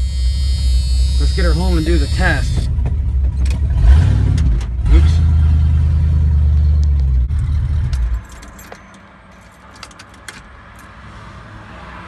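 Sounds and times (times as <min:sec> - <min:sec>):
truck engine idling: 0:00.0 - 0:08.6
keys jingling in ignition: 0:06.9 - 0:11.0.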